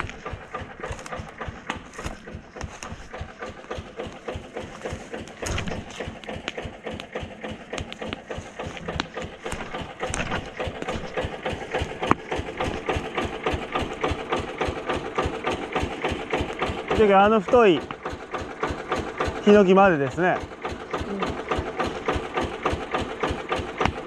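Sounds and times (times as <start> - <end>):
footsteps crunching through brush: 0.0 - 6.6
engine running steadily: 0.0 - 24.0.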